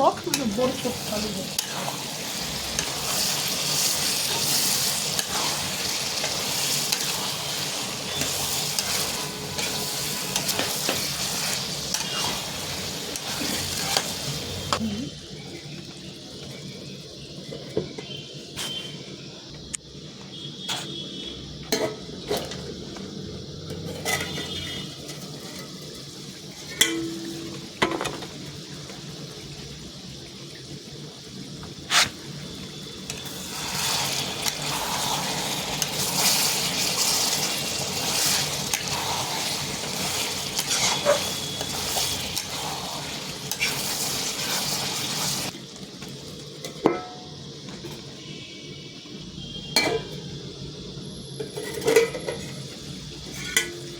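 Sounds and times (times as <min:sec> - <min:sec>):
loud sizzling: 0:00.0 - 0:53.9
metal utensils clinking on pot: 0:23.8 - 0:25.8, 0:26.6 - 0:28.2, 0:49.8 - 0:50.1, 0:51.4 - 0:52.6, 0:53.3 - 0:53.9.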